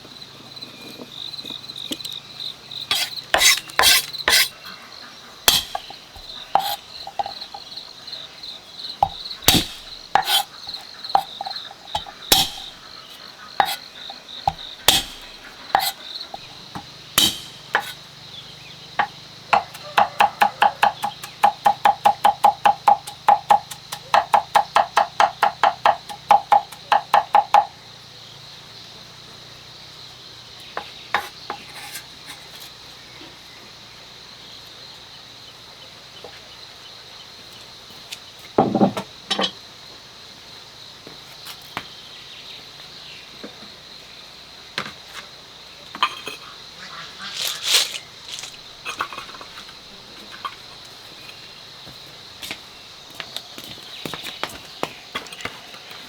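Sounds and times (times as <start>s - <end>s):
high insect drone: 0.0s - 56.0s
knife chopping on cutting board: 2.9s - 4.5s, 5.5s - 7.4s, 9.0s - 12.8s, 13.6s - 13.8s, 14.5s - 16.5s, 17.2s - 18.0s, 19.0s - 27.7s.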